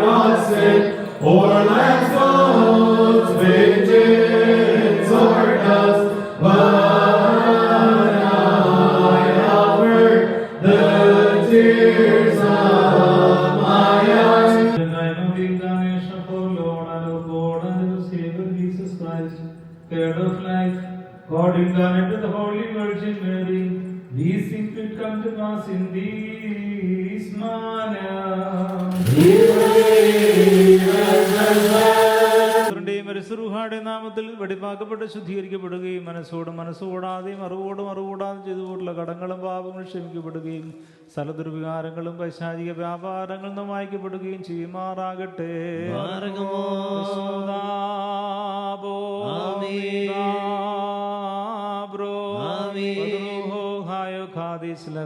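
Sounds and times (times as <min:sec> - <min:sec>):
person chanting: 0:00.0 - 0:17.6, 0:28.7 - 0:32.8.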